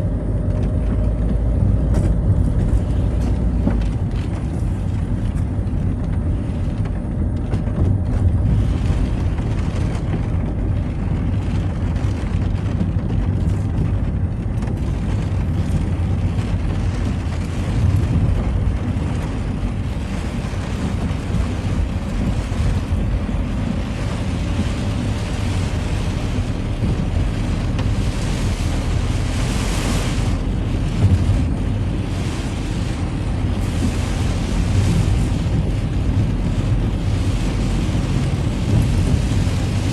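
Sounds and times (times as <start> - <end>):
car engine and tyres rumbling: 0.0 - 39.9
tyres hissing on wet road: 15.5 - 39.9.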